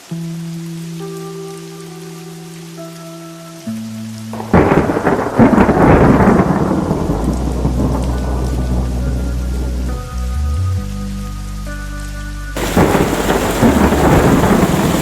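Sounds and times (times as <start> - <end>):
rain: 0.0 - 15.0
thunderclap: 4.4 - 9.9, 12.6 - 15.0.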